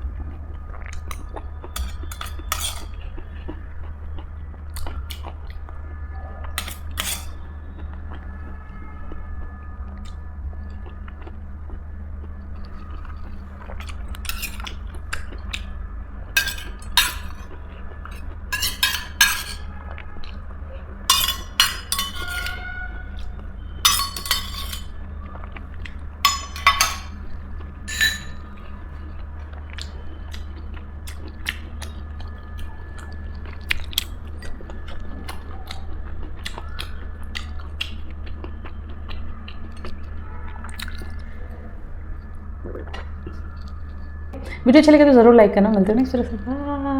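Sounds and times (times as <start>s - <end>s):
steady low hum: 0.0s - 46.9s
dishes and cutlery clinking: 1.8s - 3.0s, 6.6s - 7.4s, 14.2s - 15.3s, 16.4s - 19.7s, 21.1s - 22.8s, 23.8s - 25.0s, 26.2s - 27.3s, 27.9s - 28.6s.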